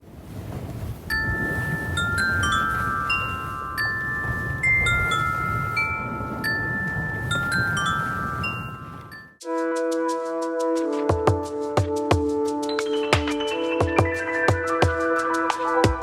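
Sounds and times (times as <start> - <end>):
wind chimes ringing: 1.1 - 9.4.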